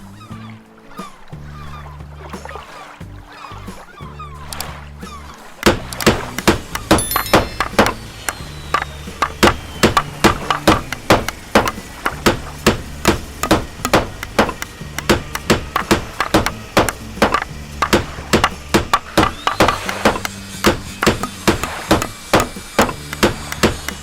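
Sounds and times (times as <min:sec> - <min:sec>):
rapid sharp knocks: 0:05.6 - 0:24.0.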